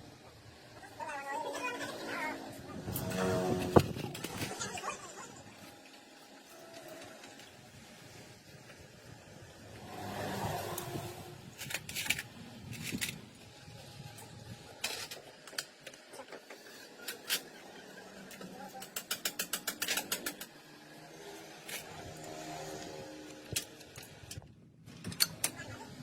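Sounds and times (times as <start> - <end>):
tools and metal parts clicking: 11.6 - 13.2, 14.2 - 17.6, 18.2 - 20.6.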